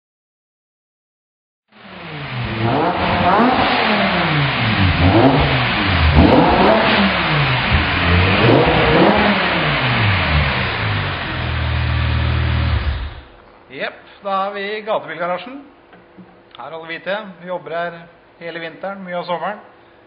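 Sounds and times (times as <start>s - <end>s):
car engine revving: 1.7s - 13.4s.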